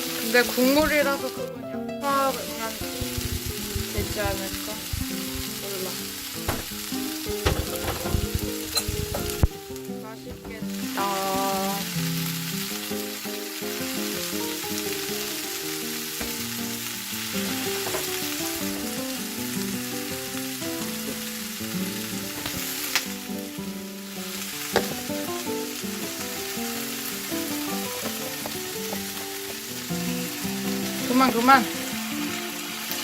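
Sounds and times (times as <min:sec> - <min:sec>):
background music: 0:00.0 - 0:33.0
food sizzling in a frying pan: 0:00.0 - 0:33.0
sharp knocks: 0:02.8 - 0:05.5, 0:06.4 - 0:09.5.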